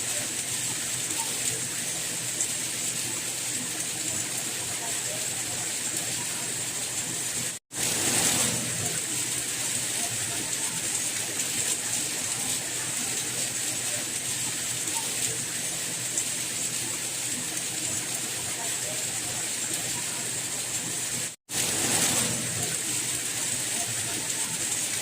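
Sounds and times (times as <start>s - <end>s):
soft rain hiss: 0.0s - 25.0s.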